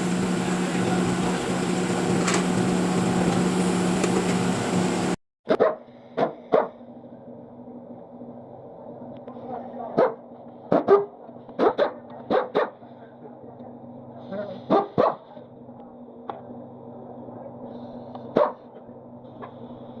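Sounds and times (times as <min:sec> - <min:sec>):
steady low hum: 0:00.0 - 0:05.2
dog barking: 0:05.5 - 0:06.8, 0:10.0 - 0:12.9, 0:14.7 - 0:15.4, 0:18.3 - 0:18.8.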